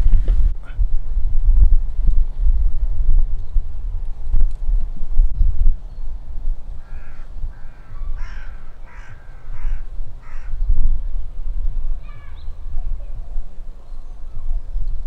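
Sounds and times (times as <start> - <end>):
wind on microphone: 0.0 - 15.0
bird calling: 6.8 - 10.8, 12.0 - 14.7.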